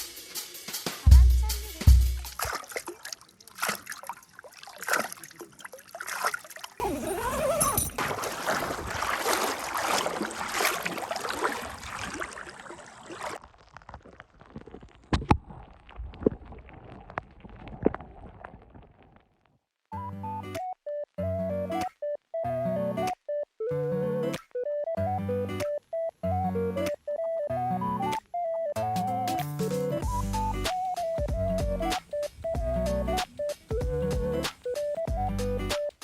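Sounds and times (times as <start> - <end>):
water splashing and sloshing: 1.7 - 19.5
water dripping: 2.0 - 6.9, 7.6 - 19.2.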